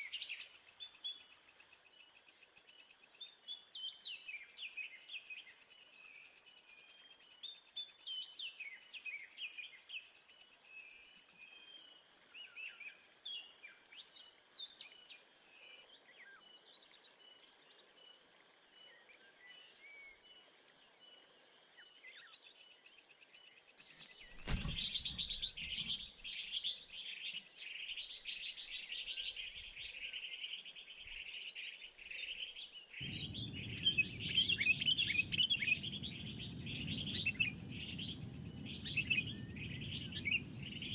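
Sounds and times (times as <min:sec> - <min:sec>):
small birds chirping: 0:00.0 - 0:40.9
insects trilling: 0:20.2 - 0:40.9
thump: 0:24.3 - 0:26.1
low rumble: 0:33.0 - 0:40.9.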